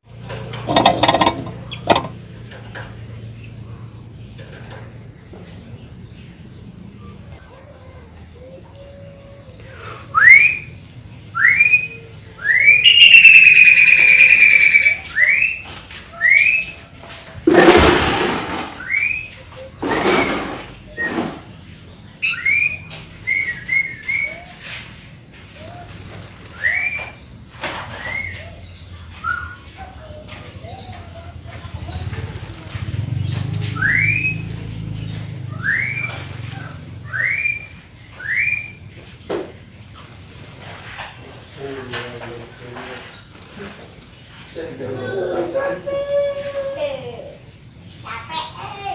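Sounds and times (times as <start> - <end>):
bird whistling song: 10.0 - 16.9, 18.7 - 21.6, 22.2 - 24.8, 26.4 - 31.0, 33.7 - 39.1.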